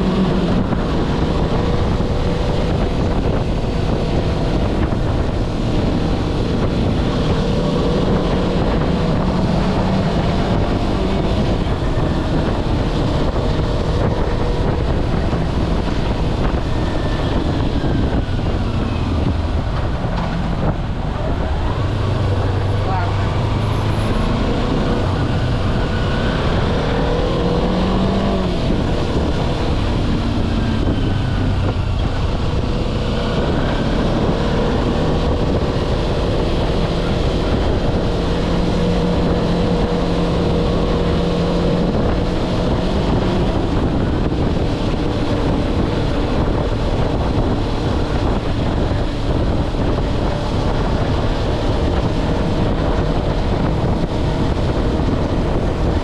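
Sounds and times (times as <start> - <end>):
wind on microphone: 0.0 - 56.0.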